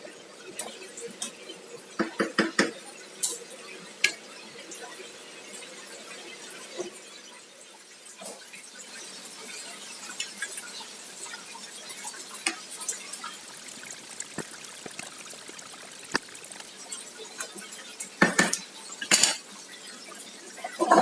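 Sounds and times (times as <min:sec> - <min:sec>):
cookware clattering: 0:18.2 - 0:19.4
kitchen utensils clinking: 0:18.2 - 0:19.5.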